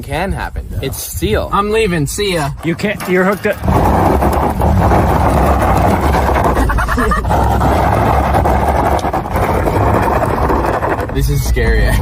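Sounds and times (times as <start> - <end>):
vehicle engine revving: 3.6 - 11.2.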